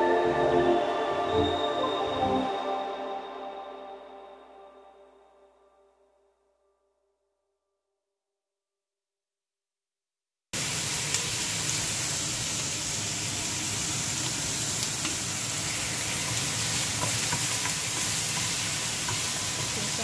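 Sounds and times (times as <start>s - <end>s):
vegetables sizzling in a pot: 10.6s - 20.0s
wooden spoon stirring: 15.0s - 20.0s.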